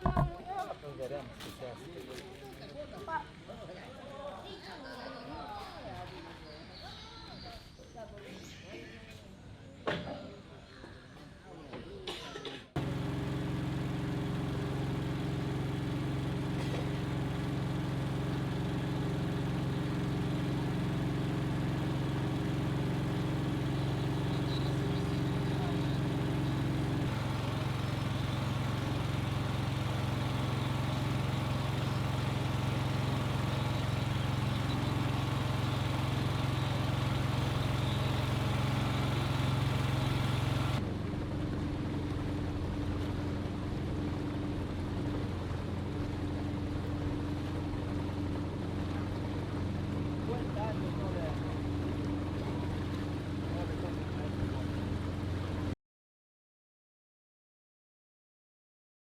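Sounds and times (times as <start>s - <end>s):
engine running: 12.7s - 55.8s.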